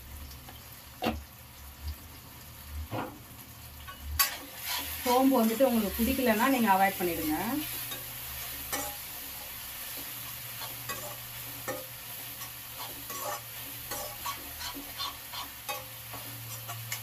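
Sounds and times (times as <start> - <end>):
masala sizzling in a pan: 0.0 - 17.0
ladle scraping and clinking pan: 10.6 - 17.0.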